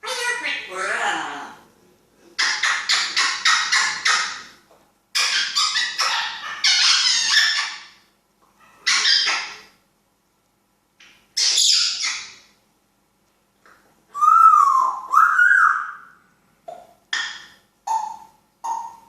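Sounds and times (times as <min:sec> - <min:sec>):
parrot harsh calls: 0:02.4 - 0:08.0, 0:08.6 - 0:09.8, 0:11.4 - 0:12.5, 0:14.1 - 0:16.2, 0:17.1 - 0:19.0.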